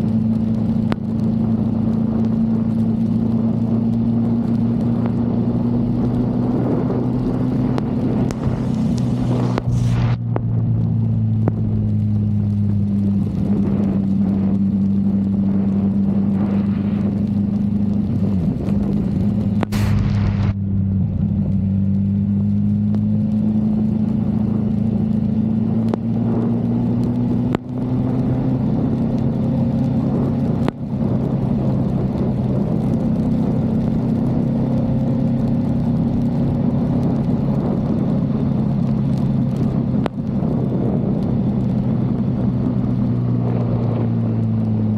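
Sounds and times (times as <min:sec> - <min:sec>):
motorcycle engine running: 0:00.0 - 0:44.9
rush of noise: 0:04.2 - 0:33.8.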